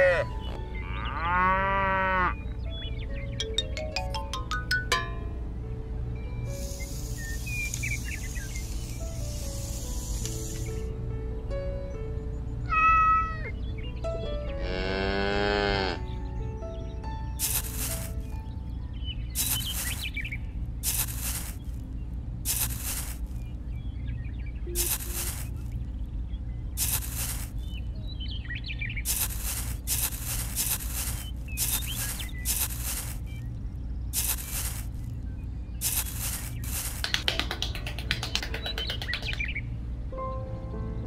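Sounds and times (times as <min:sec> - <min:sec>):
faint bird chirps: 0:06.5 - 0:10.9
trowel scraping damp sand: 0:17.4 - 0:18.2, 0:19.4 - 0:20.2, 0:20.8 - 0:21.7, 0:22.5 - 0:23.3, 0:24.8 - 0:25.6, 0:26.8 - 0:27.6, 0:29.1 - 0:33.3, 0:34.2 - 0:35.0, 0:35.8 - 0:37.0
steady low hum: 0:17.6 - 0:37.1.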